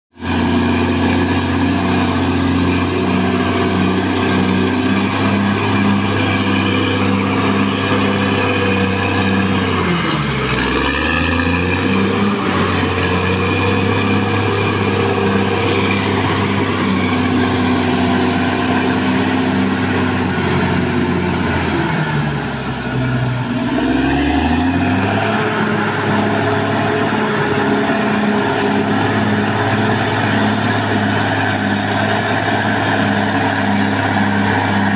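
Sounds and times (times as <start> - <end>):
bulldozer diesel engine running: 0.1 - 34.9.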